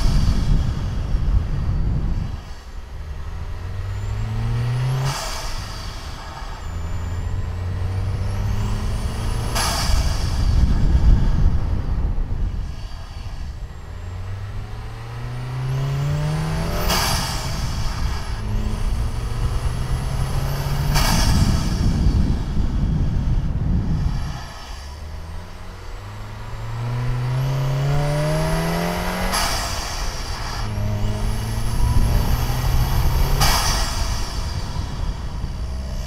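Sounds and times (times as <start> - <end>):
car engine accelerating: 0.0 - 36.0
whoosh of released boost: 15.6 - 23.3, 26.1 - 36.0.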